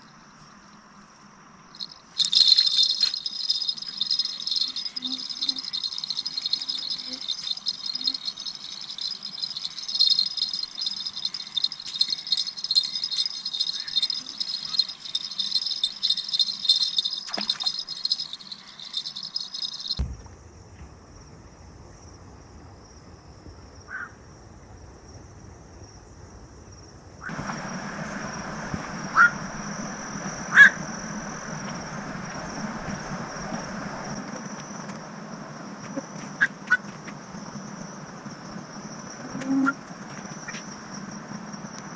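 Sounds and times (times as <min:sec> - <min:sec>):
night insects rattling chorus: 0:00.0 - 0:20.0, 0:21.1 - 0:41.9
thin high insect note: 0:01.8 - 0:20.0, 0:27.3 - 0:36.8
steady rushing noise: 0:27.3 - 0:39.2.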